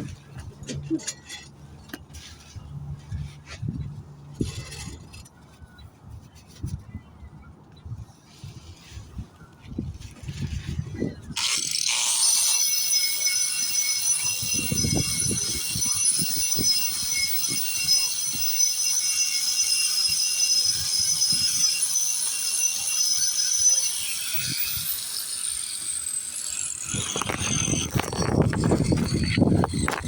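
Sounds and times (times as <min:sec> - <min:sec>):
rough scraping and handling: 0:00.0 - 0:07.3, 0:07.9 - 0:13.1, 0:26.8 - 0:30.0
power grinder whining: 0:11.3 - 0:30.0
grinder knocking on concrete: 0:11.4 - 0:30.0.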